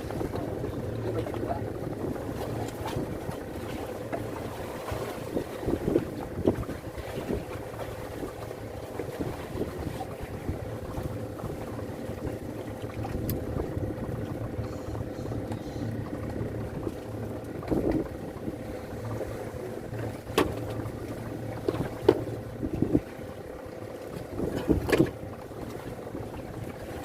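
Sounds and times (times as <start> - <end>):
strong wind: 0.0 - 8.4, 21.6 - 23.4
constant low hum: 0.0 - 27.0
sharp knocks on boat: 12.2 - 18.1, 20.0 - 23.1, 24.1 - 25.8.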